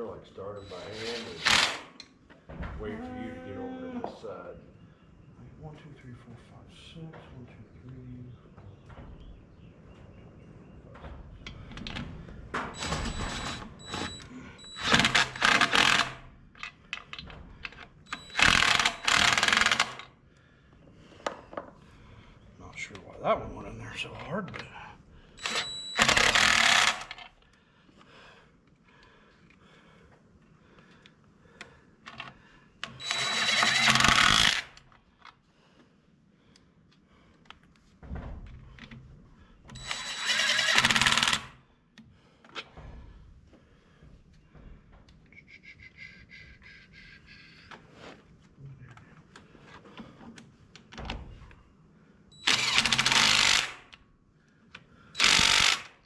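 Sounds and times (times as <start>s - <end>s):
power driver driving screws: 0.6s - 2.1s, 12.8s - 20.1s, 25.4s - 27.3s, 32.8s - 34.9s, 39.7s - 41.6s, 52.4s - 54.0s, 55.2s - 56.0s.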